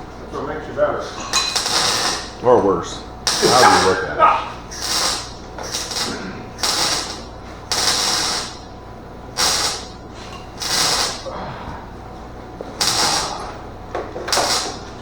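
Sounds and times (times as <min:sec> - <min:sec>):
welder crackling hiss: 0:01.2 - 0:11.4, 0:12.6 - 0:15.0.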